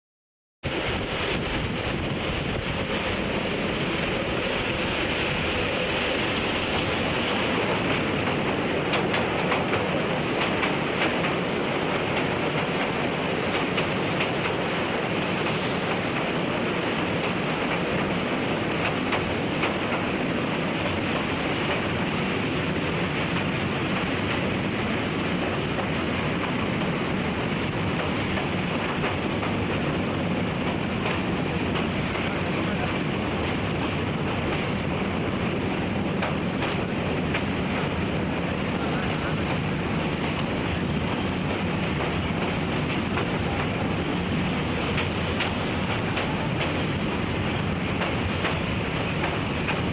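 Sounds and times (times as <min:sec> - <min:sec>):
train rumbling on rails: 0:00.6 - 0:49.9.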